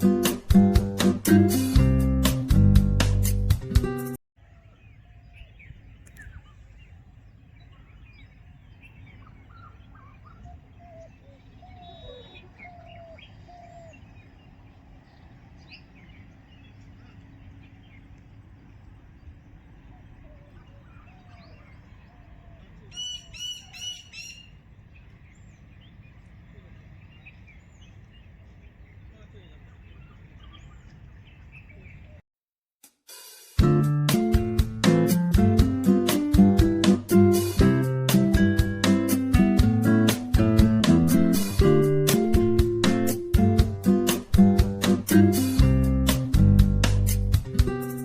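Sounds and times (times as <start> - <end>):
guitar music: 0.0 - 4.2, 33.6 - 48.0
birds calling and chirping: 4.4 - 32.2
low steady rumble: 5.3 - 23.0.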